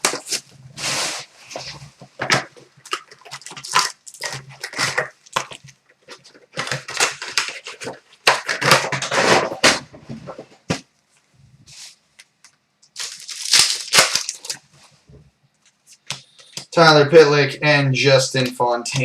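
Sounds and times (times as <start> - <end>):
plastic and foil wrapping crinkling: 0.0 - 10.6, 12.8 - 15.0.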